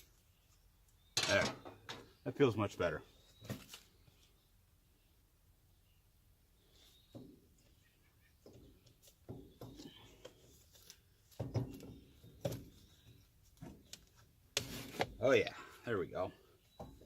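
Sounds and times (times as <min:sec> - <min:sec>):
metal parts clunking: 0:01.2 - 0:02.1.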